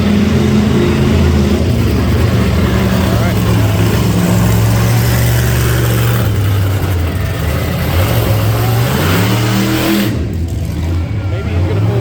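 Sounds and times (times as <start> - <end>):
loud truck engine revving: 0.0 - 12.0.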